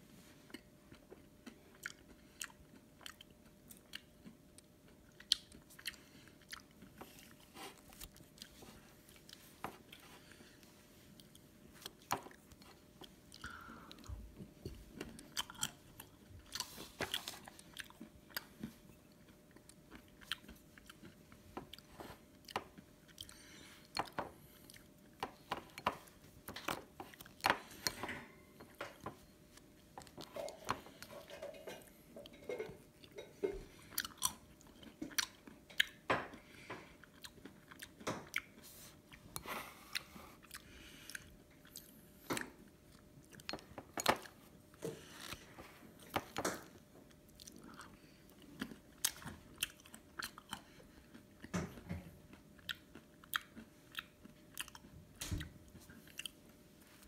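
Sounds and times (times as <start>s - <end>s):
chewing with crunches: 0.3s - 57.0s.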